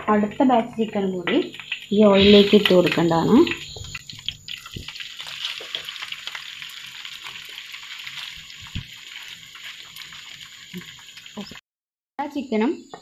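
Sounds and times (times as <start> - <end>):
chicken sizzling in hot oil: 0.2 - 11.6.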